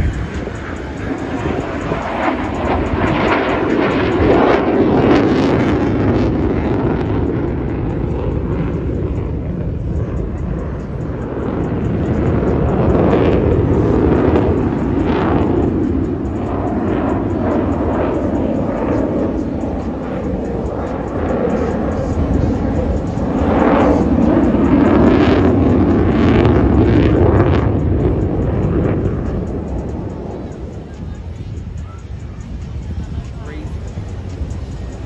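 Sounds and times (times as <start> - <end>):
hovering aircraft engine roar: 0.0 - 35.0.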